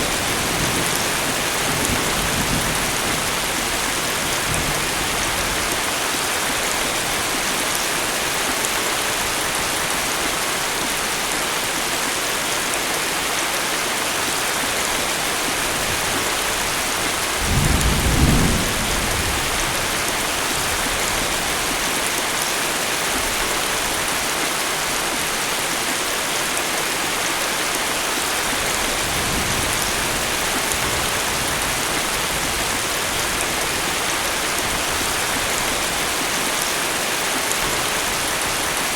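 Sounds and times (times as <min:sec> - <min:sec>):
heavy rain falling: 0:00.0 - 0:38.9
distant thunder rolling: 0:17.4 - 0:19.8
thunderclap rumbling: 0:17.4 - 0:19.9.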